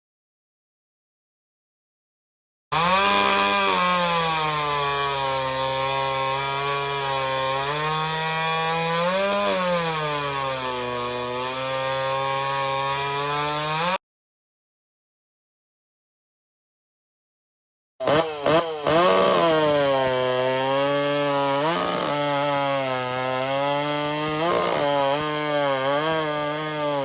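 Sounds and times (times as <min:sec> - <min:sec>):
chainsaw cutting wood: 0:02.7 - 0:14.0, 0:18.0 - 0:27.0.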